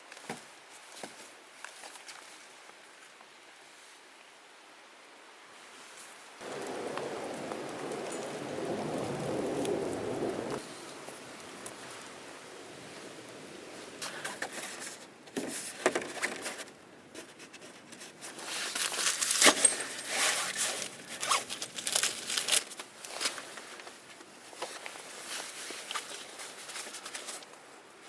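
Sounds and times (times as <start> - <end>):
rustling and crinkling handling: 13.8 - 28.0.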